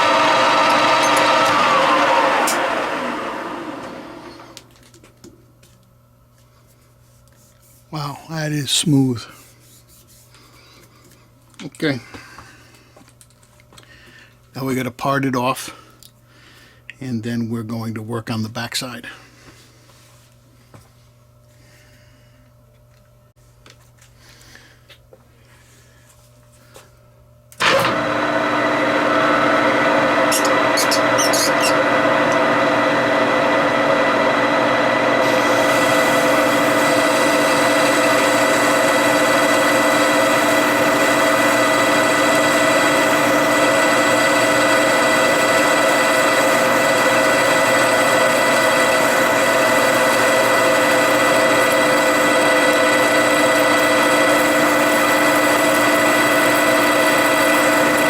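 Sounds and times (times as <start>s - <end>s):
metal lathe gearing whine: 0.0s - 4.7s, 27.6s - 58.0s.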